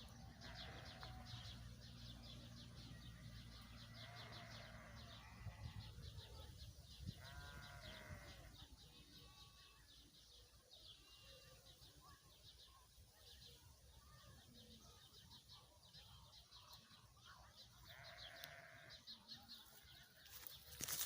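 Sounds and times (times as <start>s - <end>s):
farm animal bleating: 0.0s - 6.2s, 7.0s - 10.1s, 10.9s - 11.6s, 17.7s - 21.0s.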